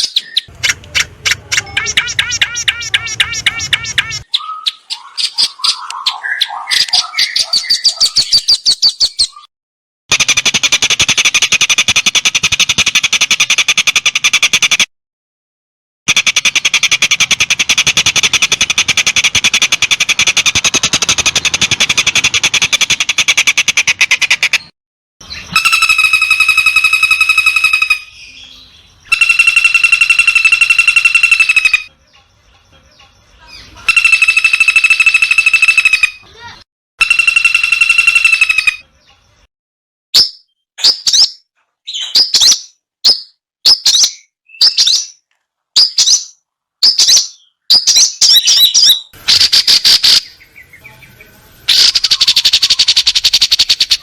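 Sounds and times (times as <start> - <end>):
harsh buzzing bird calls: 0.0 - 8.5, 16.1 - 39.2, 48.3 - 54.0
bird rapid repeated notes: 0.0 - 9.5, 10.1 - 14.9, 16.1 - 28.2, 29.1 - 31.9, 33.8 - 38.9, 45.8 - 50.9, 51.7 - 54.0
songbird trill: 0.0 - 9.5, 25.2 - 39.5, 45.8 - 54.0.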